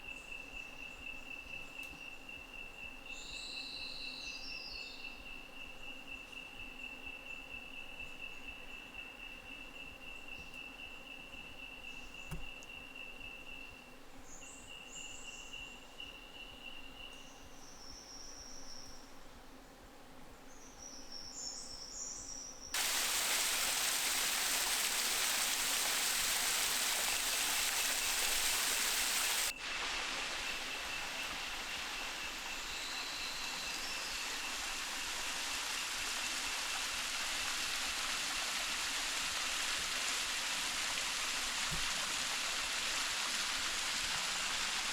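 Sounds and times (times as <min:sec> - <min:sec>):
insect chirps: 0:00.0 - 0:19.1, 0:20.6 - 0:44.9
high insect trill: 0:22.8 - 0:37.8
waterfall rushing: 0:22.8 - 0:44.9.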